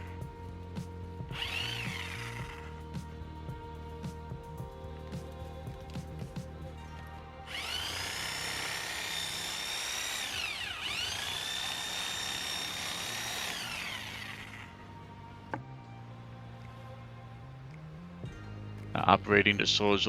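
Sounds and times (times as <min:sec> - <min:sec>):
reciprocating saw motor whine: 0:00.0 - 0:02.8, 0:07.5 - 0:15.0
background music: 0:00.0 - 0:20.0.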